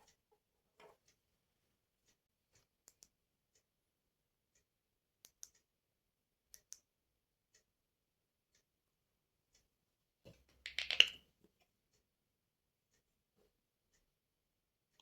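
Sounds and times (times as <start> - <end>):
faint clicks and taps: 0.0 - 1.2.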